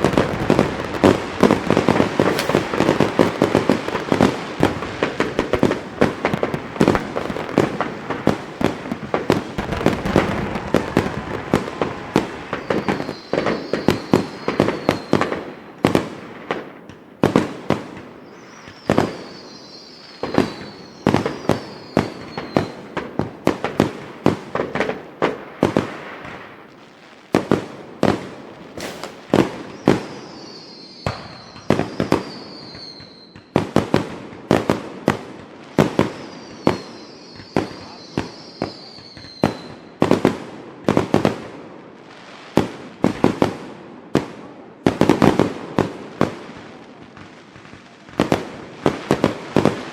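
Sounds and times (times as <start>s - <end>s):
fireworks whistling: 0.0s - 24.0s, 24.6s - 33.7s, 35.7s - 40.4s
fireworks bangs and pops: 0.0s - 49.9s.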